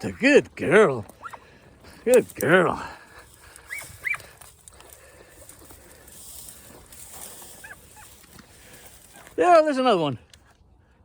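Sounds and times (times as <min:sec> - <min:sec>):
faint rustling: 0:01.0 - 0:09.4
dog yelping: 0:01.2 - 0:01.4, 0:03.7 - 0:04.3, 0:07.6 - 0:08.2.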